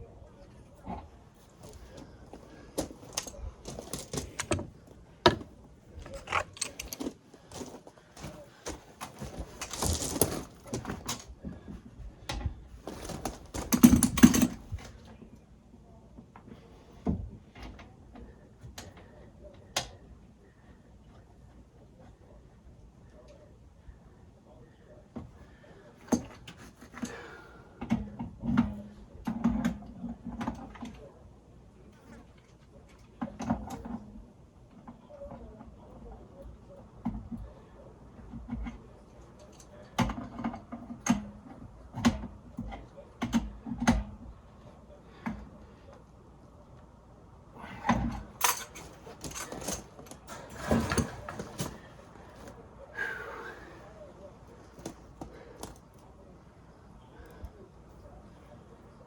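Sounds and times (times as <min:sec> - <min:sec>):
tools and pipe fittings clattering: 0:01.6 - 0:11.7, 0:12.3 - 0:15.0, 0:47.7 - 0:52.5.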